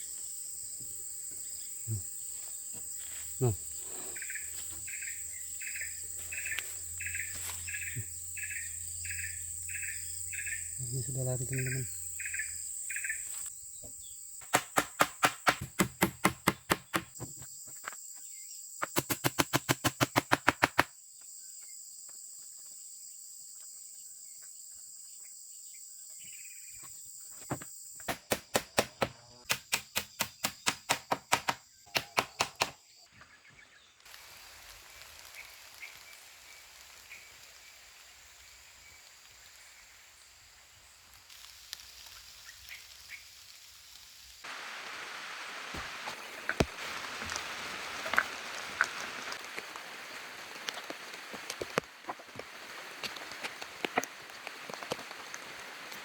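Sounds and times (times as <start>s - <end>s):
insects droning: 0.0s - 56.0s
loud sharp knocks: 14.4s - 17.1s
faint steady hiss: 33.0s - 56.0s.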